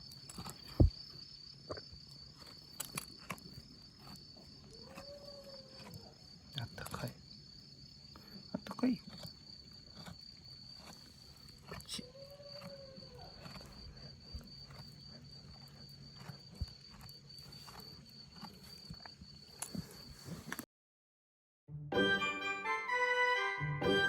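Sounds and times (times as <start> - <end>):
insect trilling: 0.0 - 20.1
organ music: 21.7 - 24.0.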